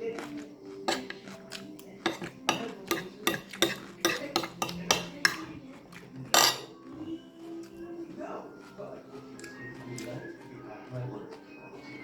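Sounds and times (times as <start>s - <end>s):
cutlery clinking on a dish: 0.2s - 7.0s.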